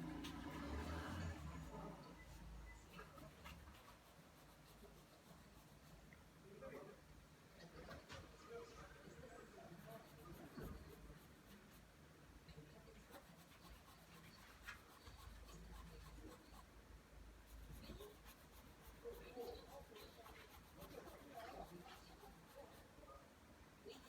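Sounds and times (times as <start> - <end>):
pencil scratching on paper: 0.1 - 6.1, 9.7 - 12.0, 12.9 - 16.7, 17.4 - 23.0.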